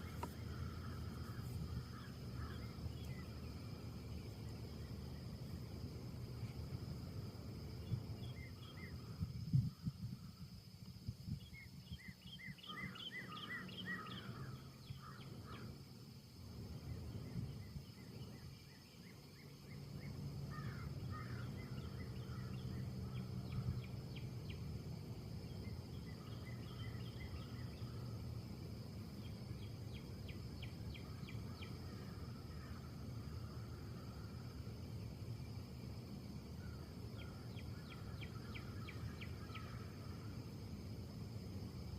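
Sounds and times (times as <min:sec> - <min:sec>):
small birds chirping: 0:00.0 - 0:06.5, 0:11.3 - 0:15.8, 0:16.8 - 0:34.3, 0:36.6 - 0:40.4
low outdoor rumble: 0:00.0 - 0:41.9.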